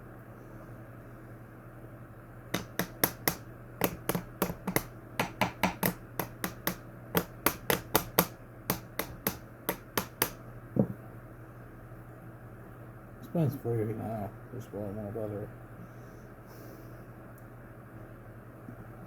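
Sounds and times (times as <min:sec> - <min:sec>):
sharp clicks and taps on fan: 0:02.5 - 0:10.9
dull knock: 0:02.6 - 0:11.0.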